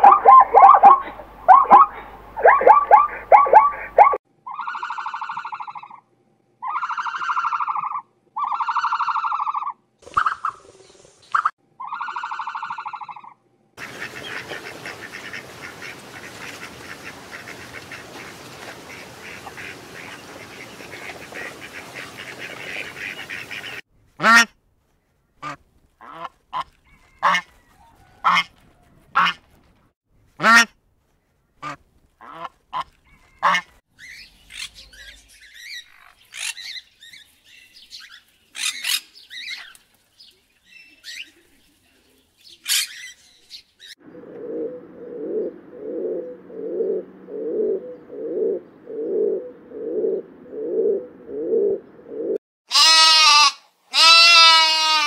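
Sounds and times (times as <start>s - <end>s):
bird honking calls: 0.0s - 5.7s, 13.8s - 24.5s
cockatoo screeches: 6.6s - 10.5s.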